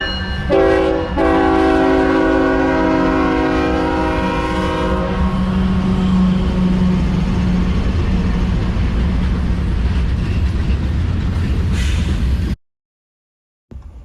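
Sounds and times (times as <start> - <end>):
locomotive air horn: 0.5 - 6.9
low engine rumble: 13.7 - 14.0.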